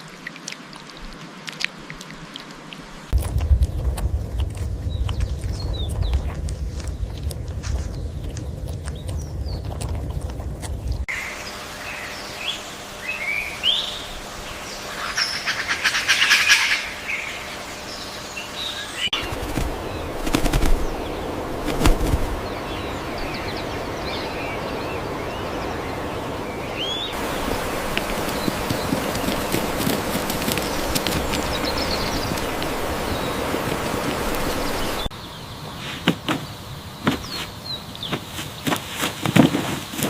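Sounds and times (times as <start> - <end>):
birds chirping: 3.0 - 40.0
low thumps: 3.2 - 11.1
bird fluttering rattle: 19.2 - 22.5, 27.6 - 34.8.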